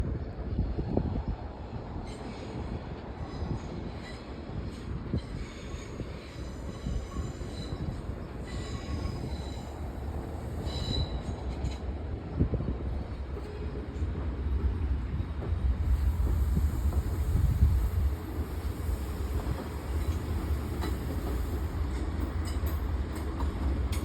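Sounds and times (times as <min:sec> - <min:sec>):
train low rumble: 0:00.0 - 0:24.0
train wheels squealing: 0:01.9 - 0:11.9, 0:15.8 - 0:24.0.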